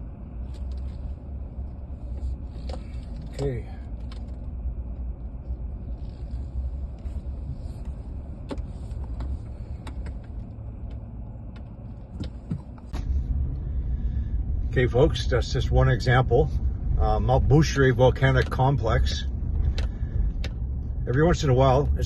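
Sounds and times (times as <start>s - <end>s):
car rumble from inside cabin: 0.0s - 22.0s
light clicks and rattles: 2.1s - 5.2s, 5.9s - 13.0s.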